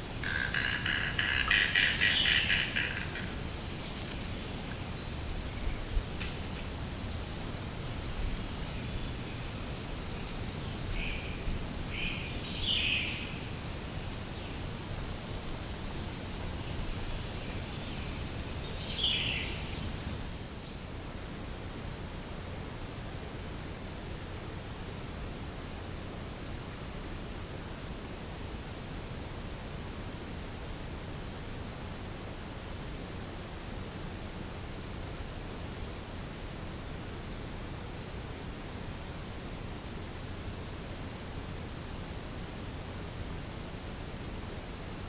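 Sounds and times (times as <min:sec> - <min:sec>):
bird chirps: 0:00.0 - 0:06.4
steady hiss: 0:00.0 - 0:23.0
steady high-pitched whine: 0:00.0 - 0:28.5.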